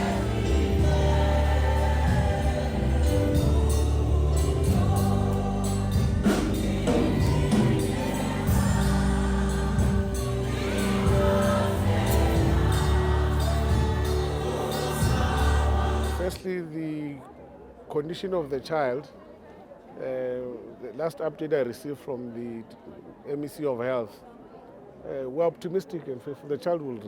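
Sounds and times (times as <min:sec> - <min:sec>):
deep bass notes: 0:00.0 - 0:16.4
choir singing gospel: 0:00.0 - 0:16.5.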